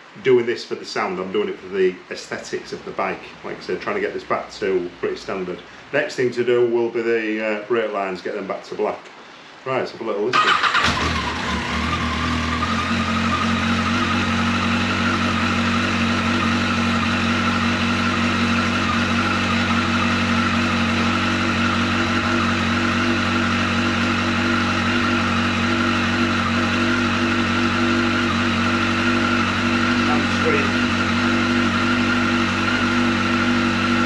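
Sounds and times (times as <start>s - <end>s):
motorcycle engine idling: 10.4s - 34.0s.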